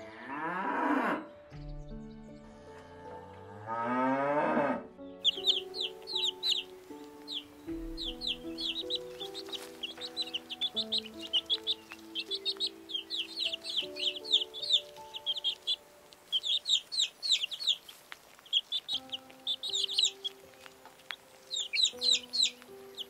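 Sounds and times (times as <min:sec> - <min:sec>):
soft background music: 0:00.0 - 0:23.0
chicks peeping: 0:05.2 - 0:23.0.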